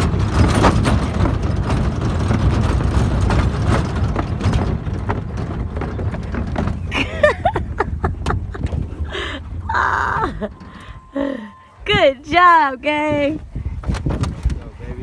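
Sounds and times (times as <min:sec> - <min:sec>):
truck engine and road rumble: 0:00.0 - 0:15.0
high whining calls: 0:09.6 - 0:11.9.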